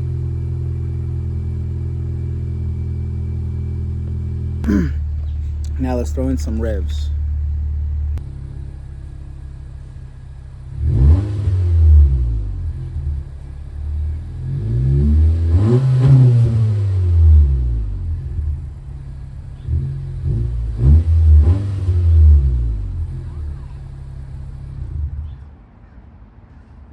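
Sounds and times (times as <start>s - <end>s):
car engine idling and revving: 0.0s - 25.6s.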